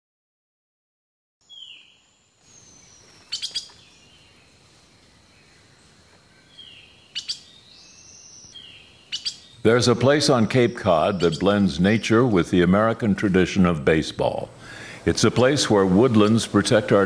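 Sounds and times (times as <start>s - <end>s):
whistled bird notes: 1.4s - 4.5s, 6.4s - 9.7s, 10.3s - 12.2s
sharp bird chips: 2.9s - 3.9s, 7.1s - 9.7s, 10.3s - 11.7s.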